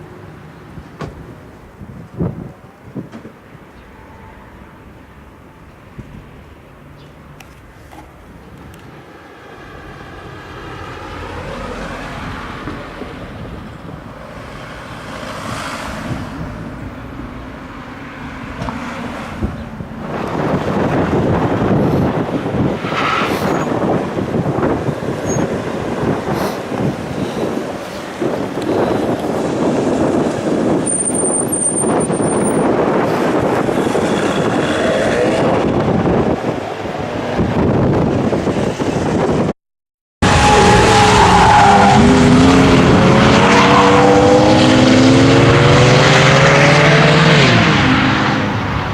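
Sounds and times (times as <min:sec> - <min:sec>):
car passing by: 0:09.2 - 0:13.6, 0:14.3 - 0:30.7.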